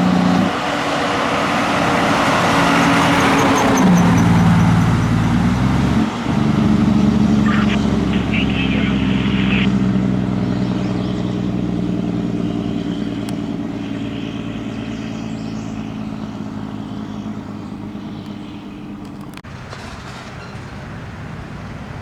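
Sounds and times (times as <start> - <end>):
fire truck engine running: 0.0 - 22.0.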